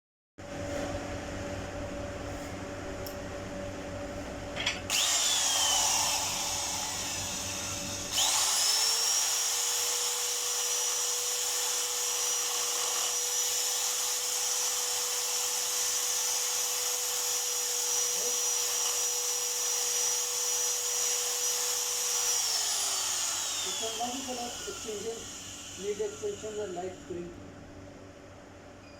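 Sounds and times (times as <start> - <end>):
small high-speed motor whining: 4.9 - 27.3.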